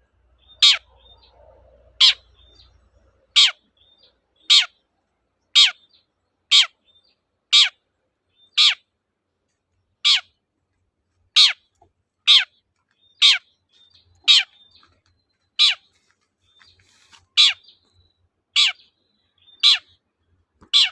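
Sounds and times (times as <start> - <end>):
bird giving harsh calls: 0.5 - 1.1, 2.0 - 2.6, 3.3 - 3.7, 4.4 - 4.8, 5.5 - 6.8, 7.5 - 7.8, 8.5 - 8.9, 10.0 - 10.4, 11.3 - 12.6, 13.2 - 14.9, 15.6 - 16.0, 16.8 - 17.8, 18.5 - 20.0, 20.6 - 20.9.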